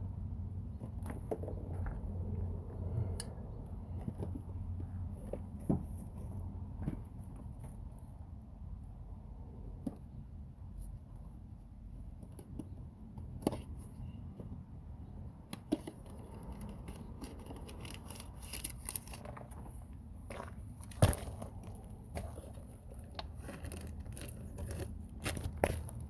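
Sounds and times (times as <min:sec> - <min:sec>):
low background rumble: 0:00.0 - 0:26.0.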